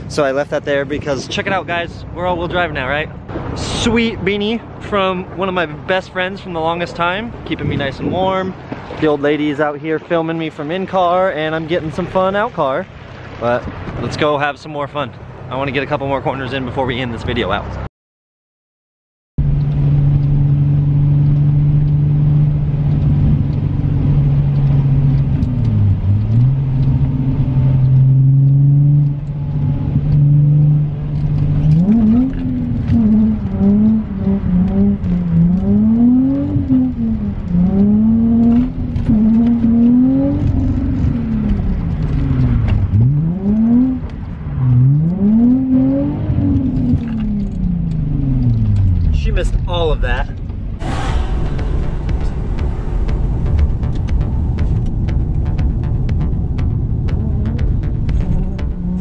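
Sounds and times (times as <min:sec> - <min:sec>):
car engine revving: 0:19.4 - 0:59.0.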